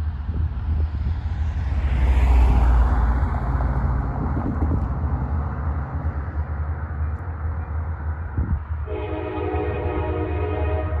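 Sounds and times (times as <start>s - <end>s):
rush of noise: 0.0s - 8.7s
diesel locomotive rumble: 0.0s - 11.0s.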